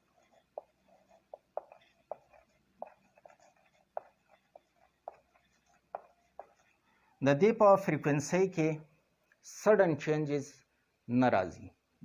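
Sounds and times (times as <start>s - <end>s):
light handwriting scratching: 0.0s - 7.2s
pen tapping on a surface: 0.3s - 6.6s.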